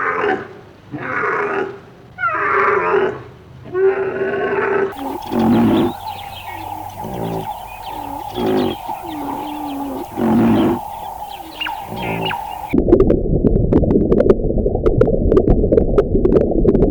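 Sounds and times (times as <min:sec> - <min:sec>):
animal calls: 0:04.9 - 0:12.8.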